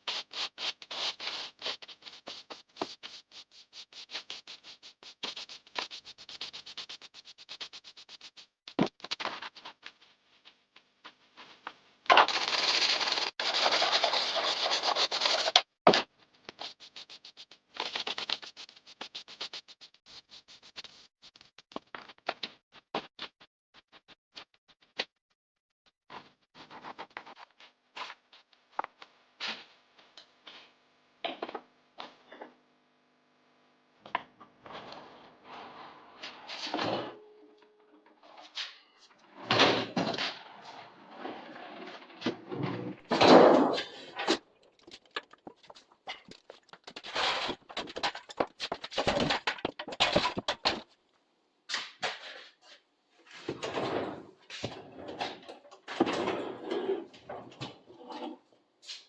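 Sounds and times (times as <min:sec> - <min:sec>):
rough scraping and rubbing: 0:12.3 - 0:15.5, 0:40.3 - 0:50.6, 0:53.2 - 0:59.0.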